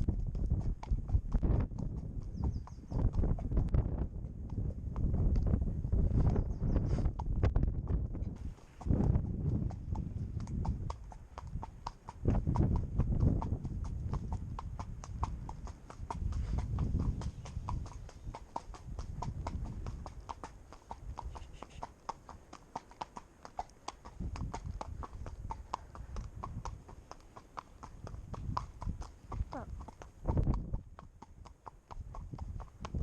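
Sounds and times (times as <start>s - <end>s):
wind rumbling on microphone: 0.0s - 21.9s, 24.0s - 27.1s, 27.8s - 33.0s
pony hooves clip-clopping: 0.0s - 33.0s.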